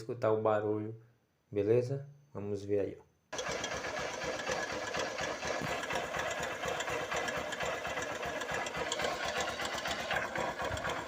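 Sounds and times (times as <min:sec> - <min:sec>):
motorcycle engine idling: 0:03.4 - 0:11.0.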